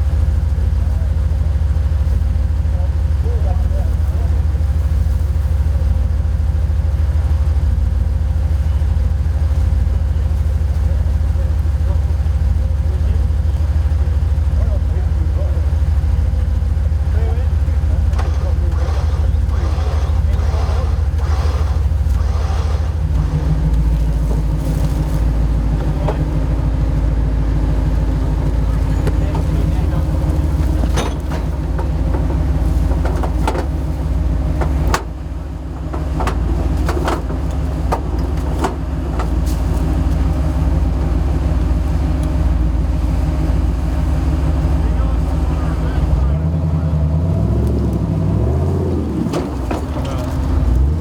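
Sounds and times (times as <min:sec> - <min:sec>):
truck engine droning: 0:00.0 - 0:51.0
brief engine knocks: 0:18.0 - 0:26.8, 0:27.8 - 0:40.6.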